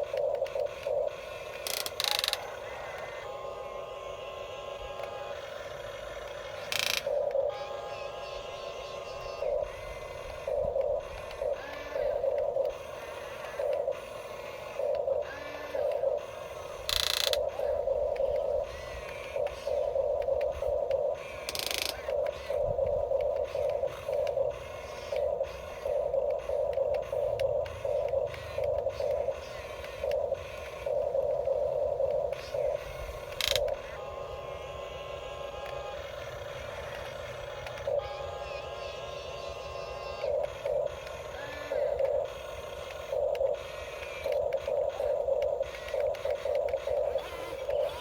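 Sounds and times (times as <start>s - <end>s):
small electric motors buzzing: 0.0s - 48.0s.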